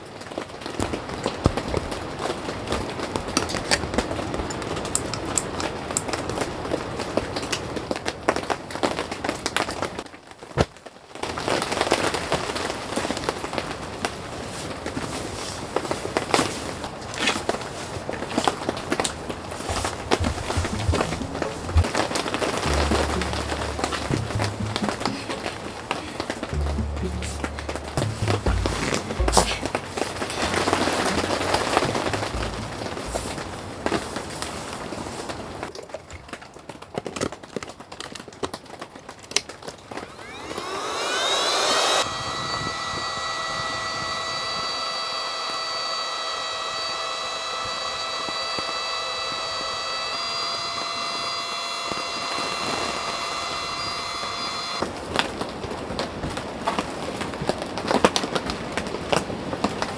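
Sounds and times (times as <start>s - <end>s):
electric air pump motor whine: 19.6s - 25.6s, 26.5s - 33.5s, 39.9s - 54.9s.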